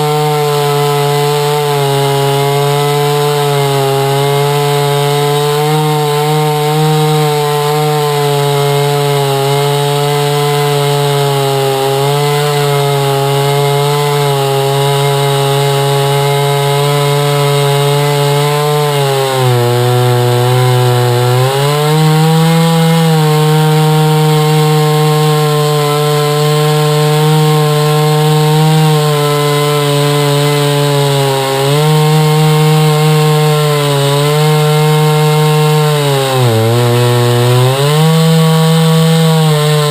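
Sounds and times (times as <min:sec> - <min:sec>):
chainsaw mill cutting log: 0:00.0 - 0:39.9.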